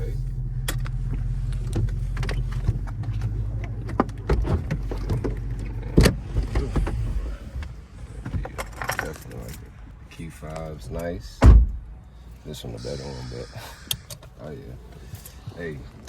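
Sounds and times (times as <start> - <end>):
car engine idling: 0.0 - 16.0
sharp thump: 11.4 - 11.9.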